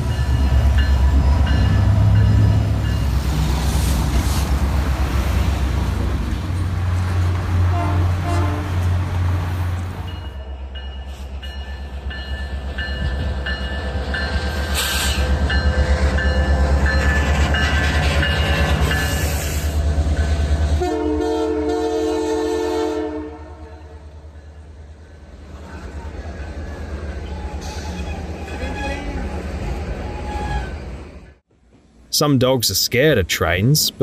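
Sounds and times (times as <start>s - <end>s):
train rumbling past: 0.0s - 34.0s
train horn blast: 7.6s - 8.9s, 20.7s - 24.1s.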